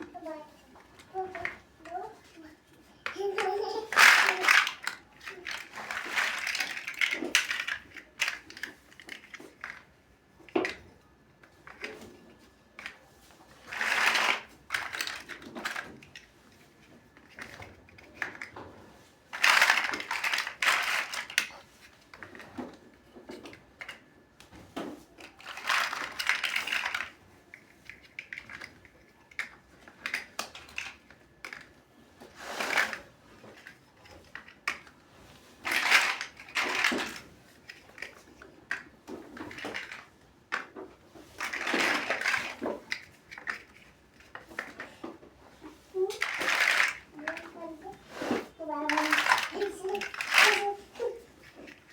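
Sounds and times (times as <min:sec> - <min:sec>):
plastic bricks clicking and rattling: 0:01.0 - 0:10.8, 0:12.8 - 0:18.6, 0:19.3 - 0:24.1, 0:25.0 - 0:35.0, 0:35.6 - 0:45.2, 0:46.0 - 0:48.0, 0:48.6 - 0:51.9.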